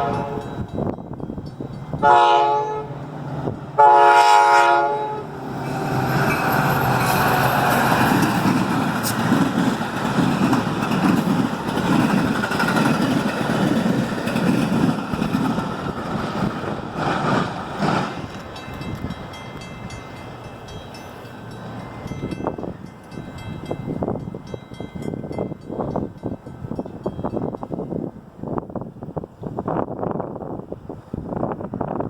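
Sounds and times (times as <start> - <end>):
train wheels clattering on rails: 5.5 - 28.0.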